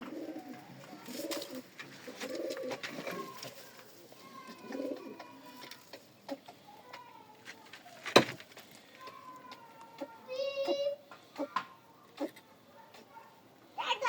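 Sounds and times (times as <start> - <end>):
pigeons cooing: 0.0 - 6.6.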